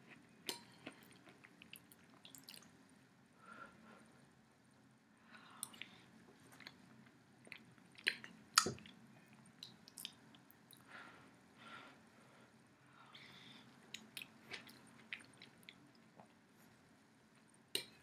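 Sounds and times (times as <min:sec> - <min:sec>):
person chewing: 0:13.9 - 0:16.4.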